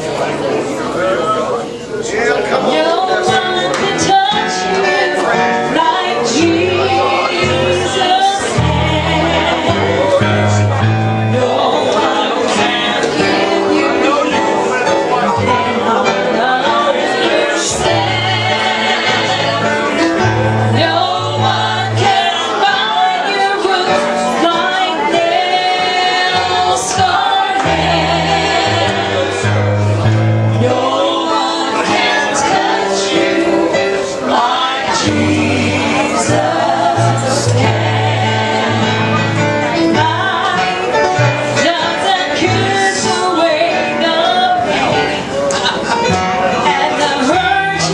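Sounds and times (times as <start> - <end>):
gospel singing with accompaniment: 0.0 - 47.9
bass line: 6.4 - 14.1, 25.2 - 31.6, 35.1 - 40.6.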